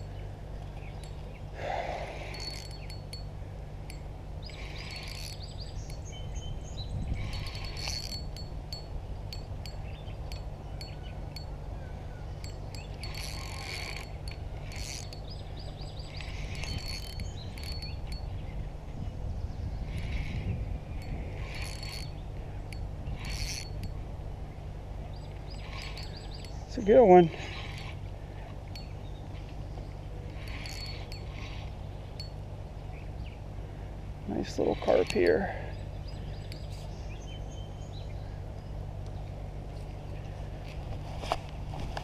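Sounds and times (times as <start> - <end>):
fishing reel clicking and whirring: 0.0 - 11.6, 12.3 - 19.0, 19.6 - 24.1, 25.1 - 32.5, 34.2 - 37.0
steady low hum: 0.0 - 42.0.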